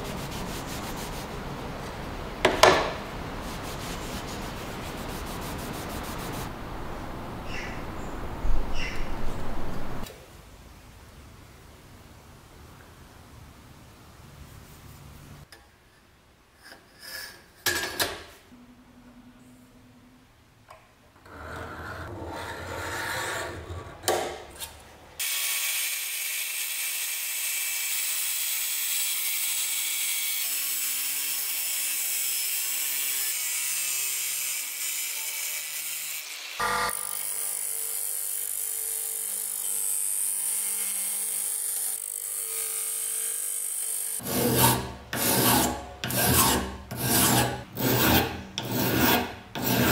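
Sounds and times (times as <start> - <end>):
knocks of metal or wood parts: 2.4 - 3.0
rubbing: 3.4 - 6.5.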